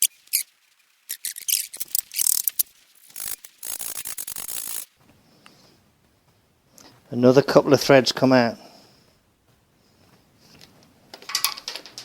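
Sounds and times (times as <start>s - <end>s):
metal ratcheting and scraping: 1.1s - 4.9s.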